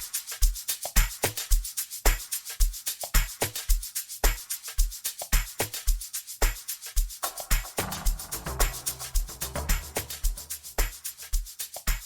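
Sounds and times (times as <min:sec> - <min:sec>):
hi-hat and shaker ticks: 0:00.0 - 0:12.0
electronic dance music: 0:07.2 - 0:11.0
deep kick drum: 0:07.5 - 0:12.0.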